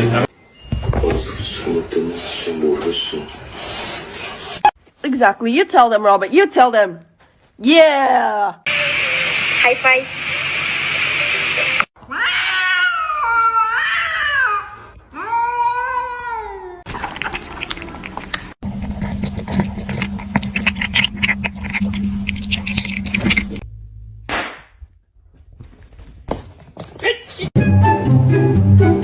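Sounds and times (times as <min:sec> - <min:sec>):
cat yowling: 0:12.1 - 0:16.8.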